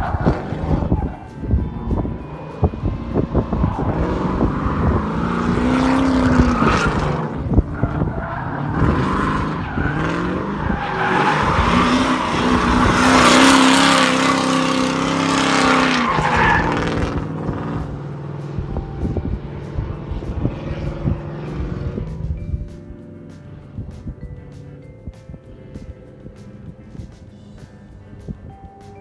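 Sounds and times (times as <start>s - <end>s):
car engine revving hard: 0.0s - 1.2s, 2.6s - 18.7s, 19.4s - 22.2s
tyres squealing: 0.0s - 17.3s.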